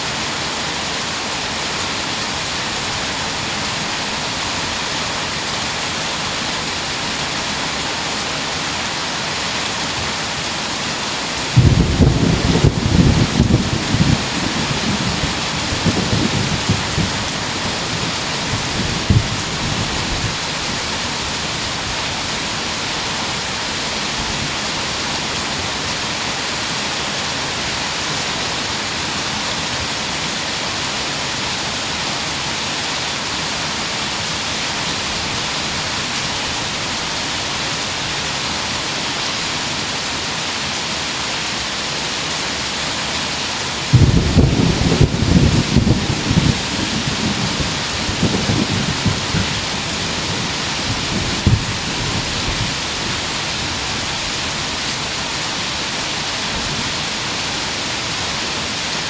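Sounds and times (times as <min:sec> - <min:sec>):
heavy rain pouring: 0:00.0 - 0:59.0
low rumble of thunder: 0:11.6 - 0:21.0, 0:43.9 - 0:52.8.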